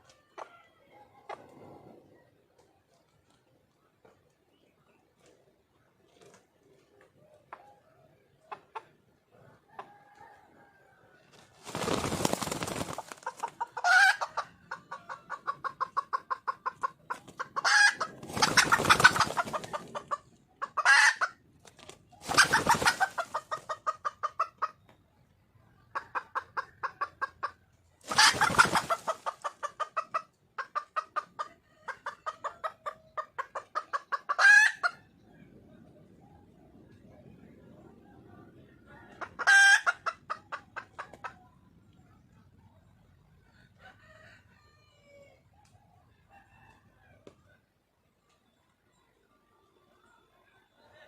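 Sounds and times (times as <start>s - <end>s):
hen clucking: 7.4s - 9.9s, 11.6s - 25.0s, 25.8s - 35.1s, 39.0s - 41.5s.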